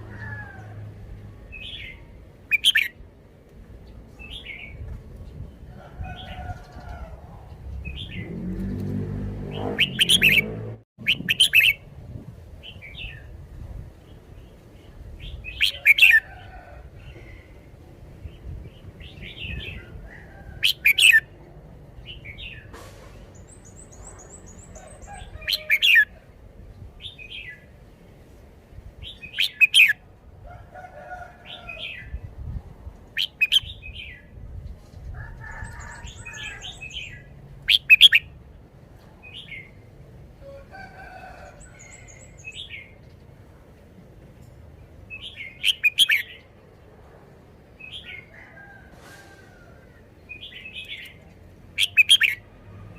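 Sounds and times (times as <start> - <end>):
bird singing warbling phrases: 1.6 - 2.9, 9.5 - 11.8, 29.1 - 30.0, 33.2 - 34.3, 36.0 - 38.3, 45.2 - 46.5, 51.8 - 52.4.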